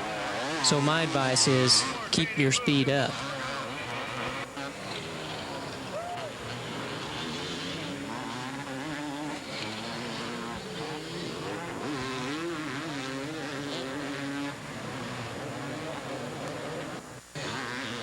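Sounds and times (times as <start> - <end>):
motocross bikes revving: 0.0 - 18.0.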